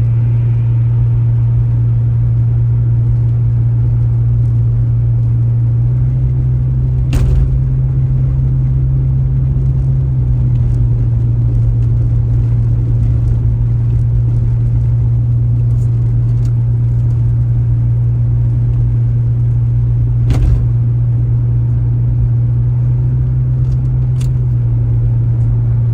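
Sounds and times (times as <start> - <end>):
car engine and road drone: 0.0 - 25.9
sharp knocks: 7.1 - 7.8, 20.3 - 20.9.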